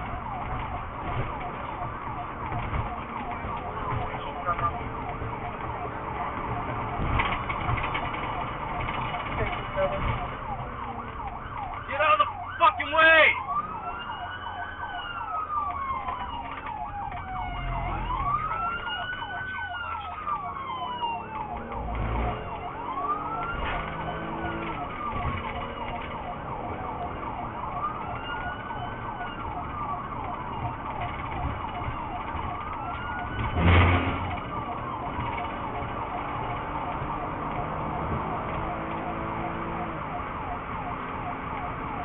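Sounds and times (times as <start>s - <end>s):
police siren wailing: 0.0s - 42.0s
siren yelp tone: 0.0s - 42.0s.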